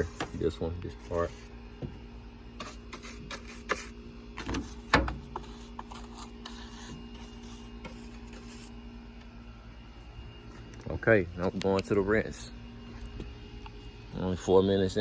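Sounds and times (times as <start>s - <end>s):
brush scrubbing metal parts: 0.0s - 1.5s, 2.6s - 8.7s.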